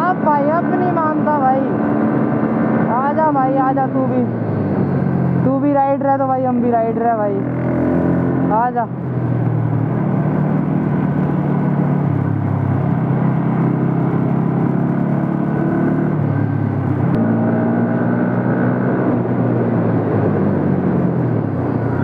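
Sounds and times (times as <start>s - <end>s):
wind rushing over microphone: 6.4s - 22.0s.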